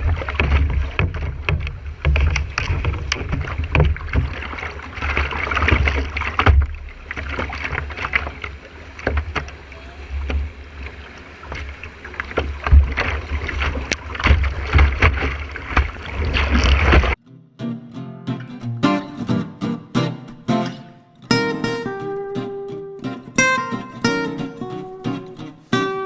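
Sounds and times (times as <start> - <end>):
rushing splashing water: 0.0 - 17.2.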